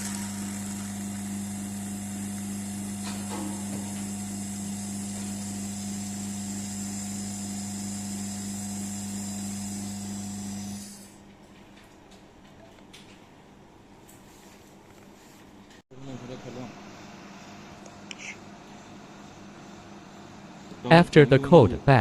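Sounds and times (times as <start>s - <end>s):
pump hiss: 0.0s - 11.1s
electric oil pump humming: 0.0s - 11.2s.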